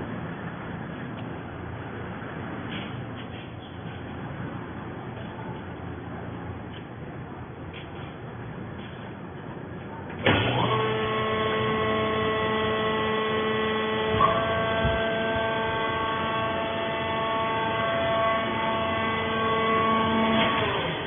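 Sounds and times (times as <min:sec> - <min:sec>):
hydraulic unit whining hum: 0:00.0 - 0:21.0.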